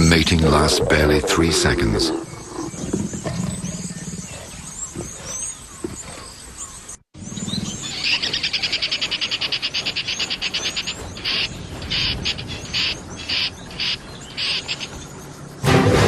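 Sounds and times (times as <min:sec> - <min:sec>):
music: 0:15.6 - 0:16.0.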